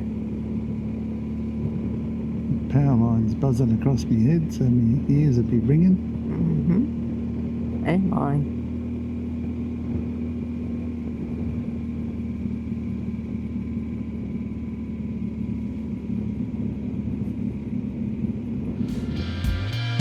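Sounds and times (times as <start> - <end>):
motorcycle engine cruising: 0.0 - 20.0
road noise: 0.0 - 20.0.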